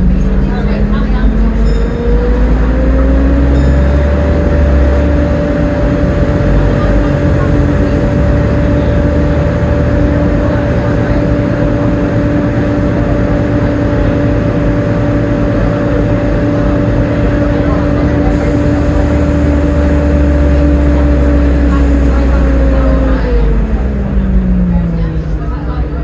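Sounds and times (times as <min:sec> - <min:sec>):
bus drivetrain whine: 0:00.0 - 0:26.0
low engine rumble: 0:00.0 - 0:26.0
road noise: 0:00.0 - 0:26.0.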